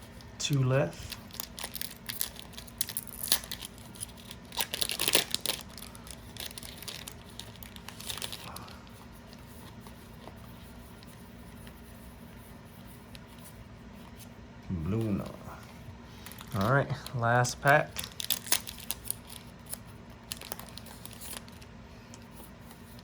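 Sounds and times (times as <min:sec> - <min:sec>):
foil wrapper tearing and crinkling: 0:01.0 - 0:08.9, 0:16.2 - 0:21.6.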